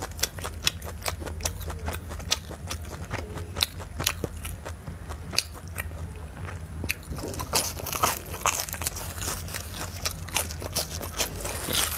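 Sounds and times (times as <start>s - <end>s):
crunchy chewing of meat: 0.0s - 11.9s
faint low hum: 0.0s - 11.9s.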